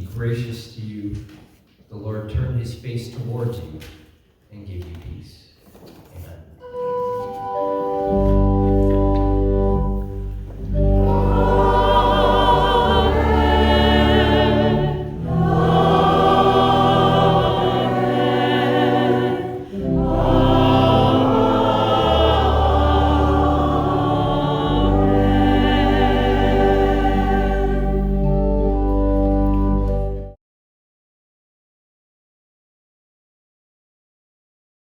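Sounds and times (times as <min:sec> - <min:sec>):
church organ: 0:06.6 - 0:30.4
choir singing: 0:09.8 - 0:29.1.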